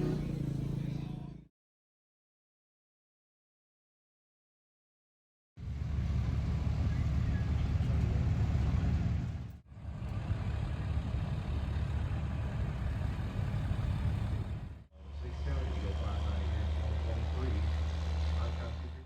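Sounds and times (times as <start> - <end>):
truck engine idling: 6.1 - 19.0.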